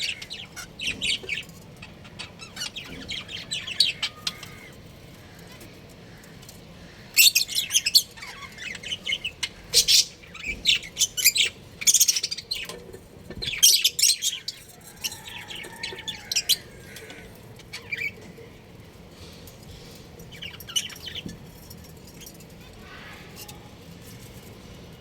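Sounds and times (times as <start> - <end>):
budgerigars chirping: 0.0 - 4.7.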